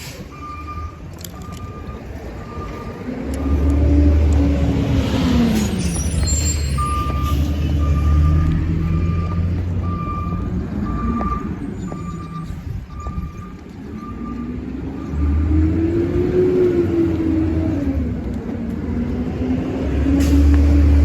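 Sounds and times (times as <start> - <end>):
reversing alarm beeping: 0.2 - 4.8, 5.6 - 15.8.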